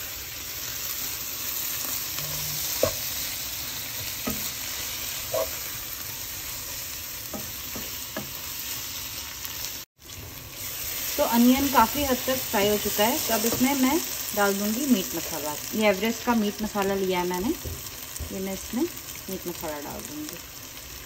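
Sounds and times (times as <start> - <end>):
onions sizzling in oil: 0.0 - 21.0
wooden spatula scraping a pot: 1.8 - 3.4, 4.0 - 5.7.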